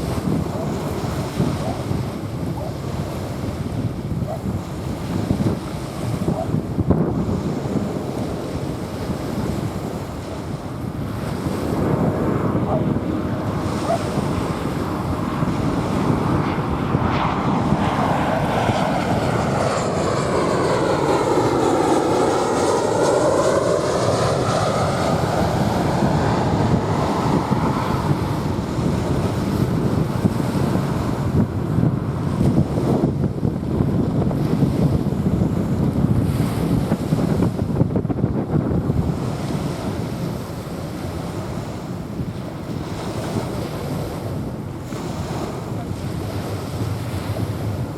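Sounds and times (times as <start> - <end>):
waves washing on beach: 0.0 - 31.4, 34.4 - 37.7, 38.9 - 47.9
jet airliner passing over: 0.0 - 47.9
wind buffeting microphone: 0.0 - 47.9.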